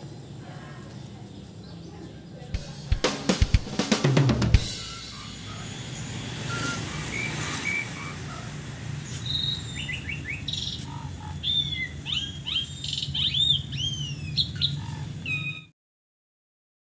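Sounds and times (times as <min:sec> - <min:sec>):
songbird chirping: 0:00.0 - 0:15.7
steady low hum: 0:02.6 - 0:15.2.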